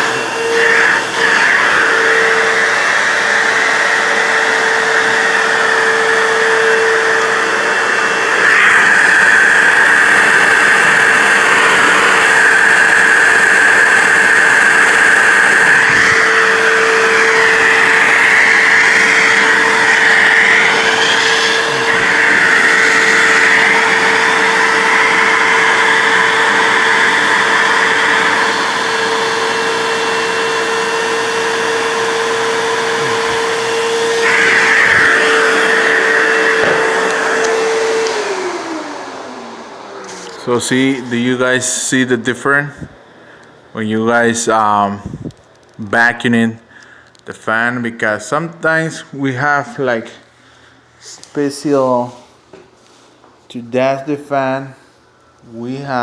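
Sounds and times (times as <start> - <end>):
rushing air: 0.0 - 25.4
vacuum cleaner whine: 0.0 - 56.0.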